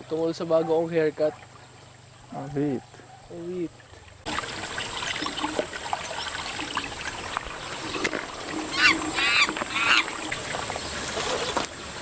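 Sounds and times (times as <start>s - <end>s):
background hiss: 0.0s - 12.0s
wavering animal calls: 8.4s - 10.5s.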